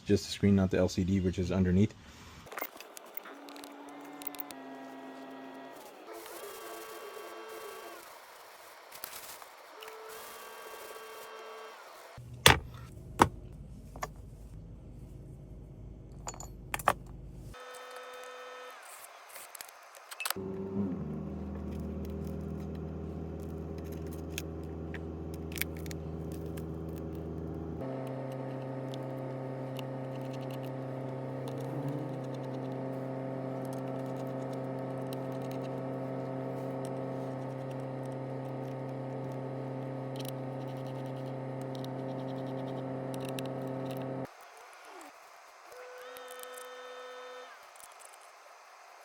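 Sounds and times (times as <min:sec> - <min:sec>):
machine humming: 0:20.3 - 0:44.3.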